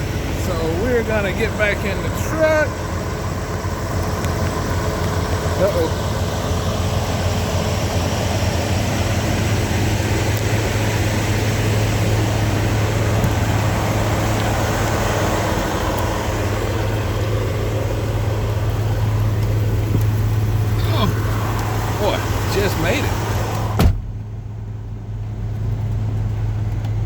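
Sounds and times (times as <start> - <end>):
truck diesel engine idling: 0.0 - 27.0
rain hissing: 0.1 - 23.8.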